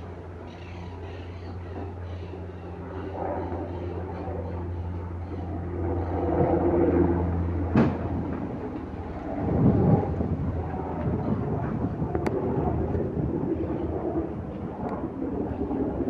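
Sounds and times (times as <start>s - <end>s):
aircraft engines rumbling: 0.0s - 16.0s.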